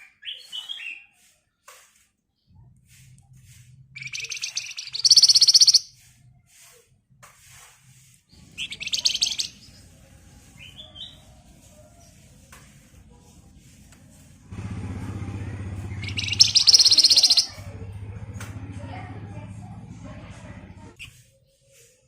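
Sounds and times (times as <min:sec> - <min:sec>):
bird singing rattling trills: 0:04.0 - 0:06.0, 0:08.4 - 0:10.0, 0:15.7 - 0:17.6.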